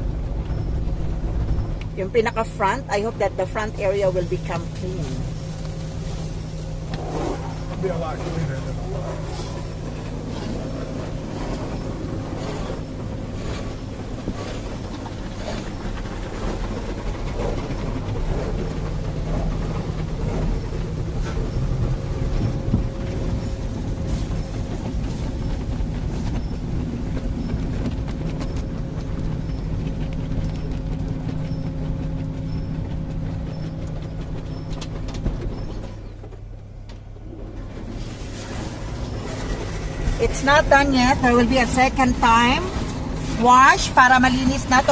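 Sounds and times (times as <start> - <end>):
steady low hum: 0.0 - 44.9
car wash spraying and scrubbing: 2.2 - 29.6, 36.0 - 44.9.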